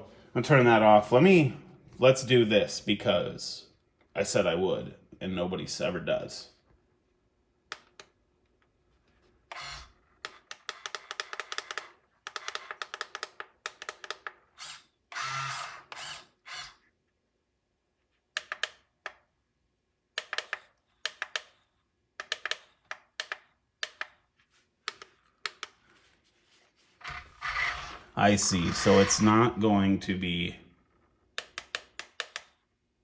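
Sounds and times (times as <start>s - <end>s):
toy truck motor clicking whir: 9.5s - 17.0s, 27.0s - 29.4s.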